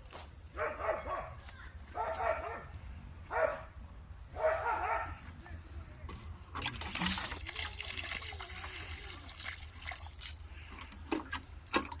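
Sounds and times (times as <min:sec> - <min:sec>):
water splashing and trickling: 0:06.4 - 0:12.0.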